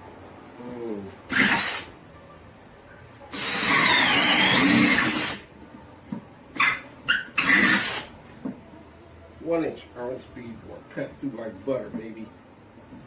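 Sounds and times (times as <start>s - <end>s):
cordless drill boring through wood: 1.3s - 1.9s, 3.3s - 5.5s, 6.6s - 8.1s.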